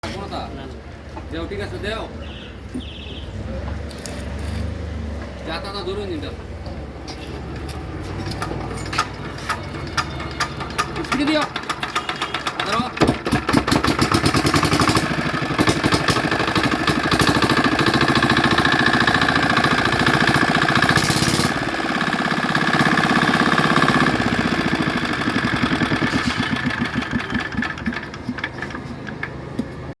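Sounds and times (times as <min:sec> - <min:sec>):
small engine running: 0:08.2 - 0:29.3.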